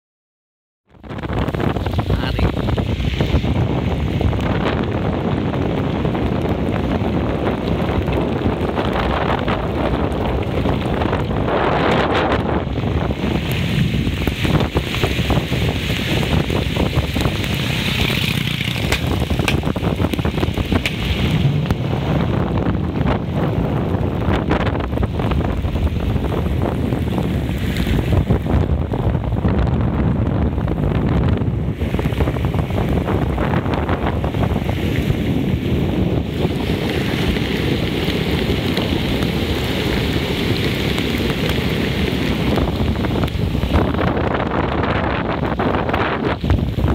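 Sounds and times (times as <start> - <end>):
wind buffeting microphone: 0.9 - 46.9
heavy rain falling: 1.0 - 46.9
raindrops tapping nearby: 4.0 - 21.8, 36.4 - 46.9.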